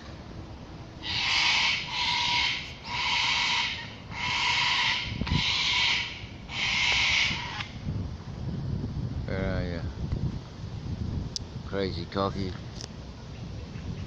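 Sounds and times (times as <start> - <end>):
cockatoo screeching: 1.0 - 7.8.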